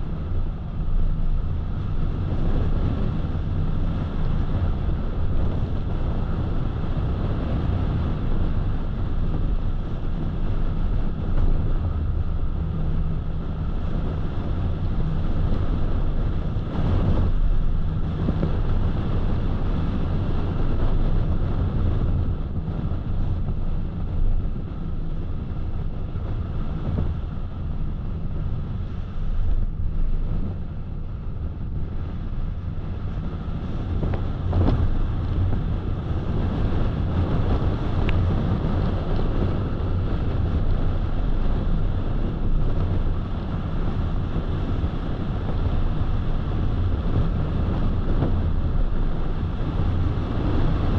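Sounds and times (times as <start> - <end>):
car road noise: 0.0 - 50.9.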